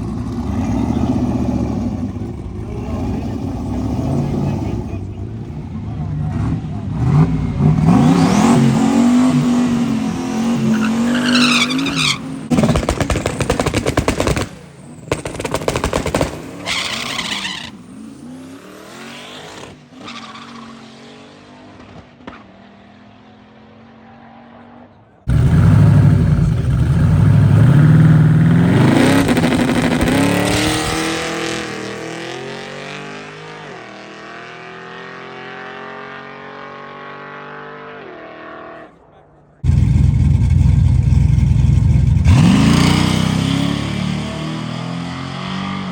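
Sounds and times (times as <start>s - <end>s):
drag racing engines revving: 0.0s - 45.9s.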